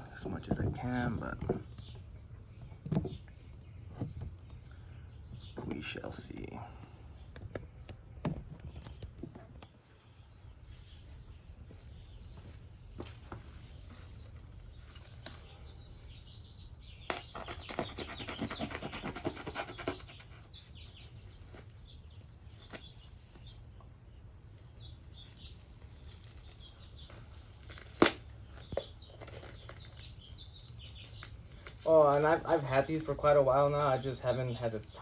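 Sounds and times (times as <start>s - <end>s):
birds chirping: 0.0s - 35.0s
packaging rustling and tearing: 24.5s - 35.0s.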